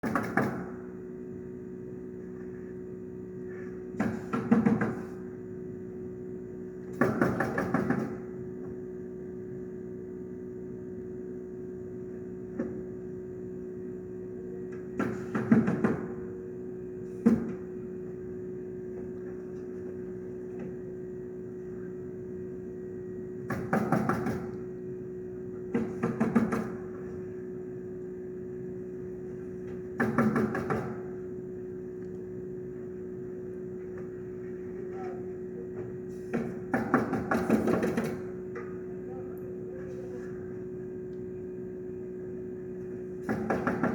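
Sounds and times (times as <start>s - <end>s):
nail gun shots: 0.0s - 0.8s, 6.9s - 8.3s, 23.5s - 24.5s, 30.0s - 31.1s, 36.3s - 38.3s.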